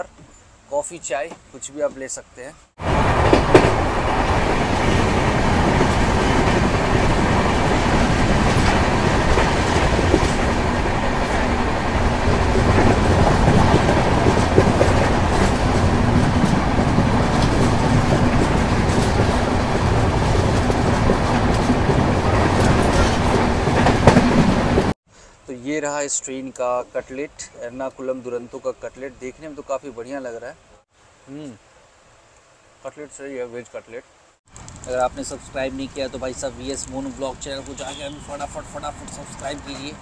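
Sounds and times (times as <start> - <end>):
wheels clicking over rail joints: 2.8 - 24.9, 34.5 - 40.0
rush of wheel and track noise: 2.8 - 25.0.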